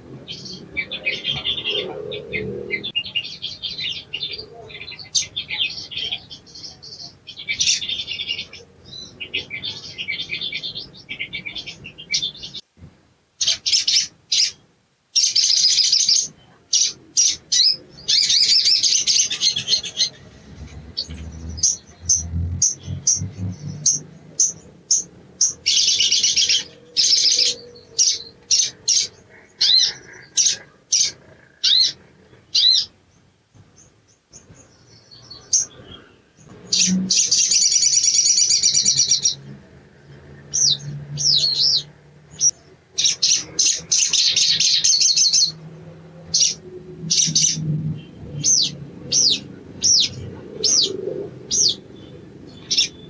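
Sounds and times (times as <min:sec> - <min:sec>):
bird singing rattling chatter: 0:15.2 - 0:53.0.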